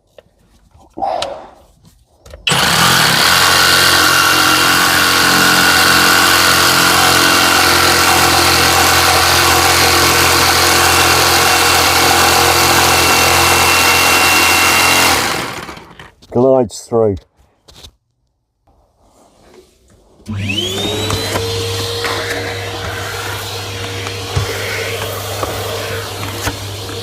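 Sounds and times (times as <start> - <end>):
jigsaw cutting board: 2.4 - 16.2, 20.3 - 27.0.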